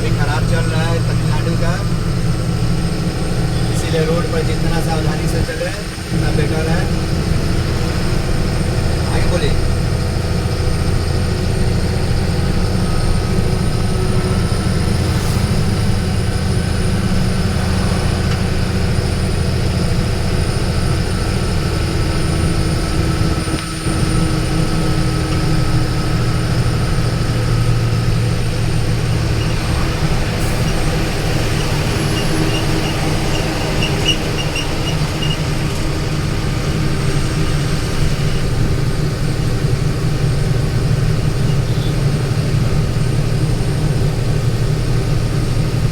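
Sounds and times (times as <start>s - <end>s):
road noise: 0.0s - 45.9s
vehicle engine drone: 0.0s - 45.9s.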